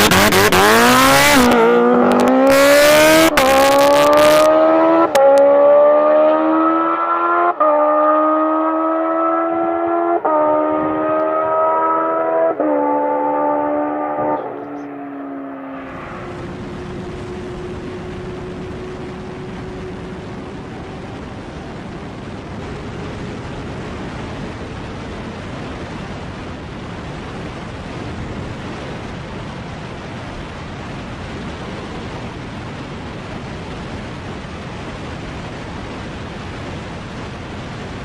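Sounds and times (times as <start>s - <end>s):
wind rushing over microphone: 0.0s - 38.0s
faint rising tone: 8.0s - 20.8s.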